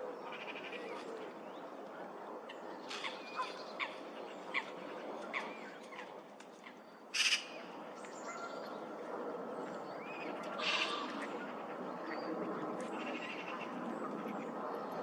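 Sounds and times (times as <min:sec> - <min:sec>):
steady background noise: 0:00.0 - 0:15.0
harsh bird calls: 0:10.6 - 0:11.3.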